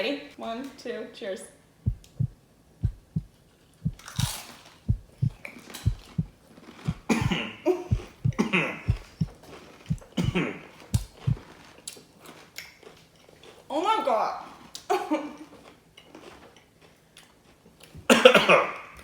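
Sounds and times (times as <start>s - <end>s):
wordless mouth noises: 1.9s - 3.3s, 4.9s - 6.3s, 6.9s - 9.3s, 9.9s - 11.4s
people coughing: 6.9s - 9.3s, 9.9s - 10.6s, 18.1s - 18.7s
people chewing chips: 11.1s - 13.7s, 14.5s - 18.0s.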